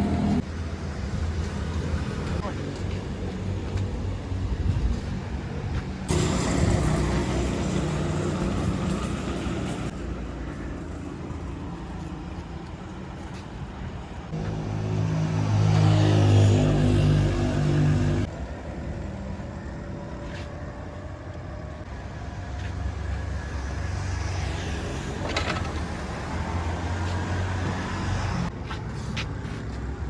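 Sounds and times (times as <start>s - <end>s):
road noise: 0.0s - 30.0s
vehicle engines running: 0.0s - 30.0s
closer louder engine: 6.1s - 12.5s.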